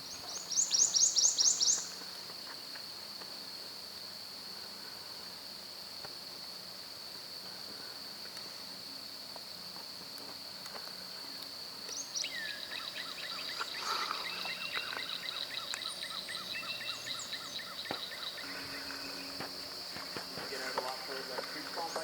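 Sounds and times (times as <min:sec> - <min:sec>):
birds chirping: 0:00.0 - 0:02.5, 0:10.8 - 0:22.0
high-pitched insect drone: 0:00.0 - 0:22.0.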